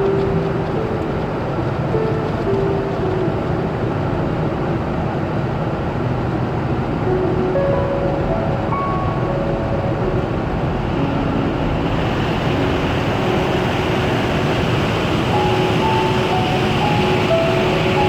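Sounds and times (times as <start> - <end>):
car wash rushing: 10.2 - 18.0.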